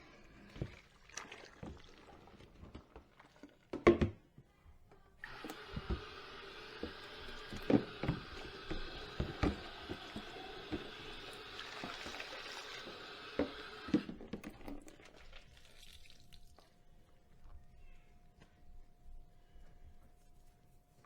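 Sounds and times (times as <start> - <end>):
tap water running into sink: 0.4 - 4.2, 5.2 - 16.6.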